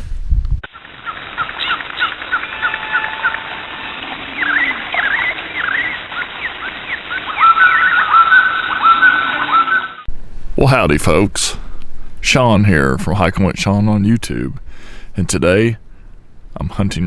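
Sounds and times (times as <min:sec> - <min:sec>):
birds chirping: 0:00.9 - 0:17.0
whistled bird notes: 0:01.0 - 0:10.1.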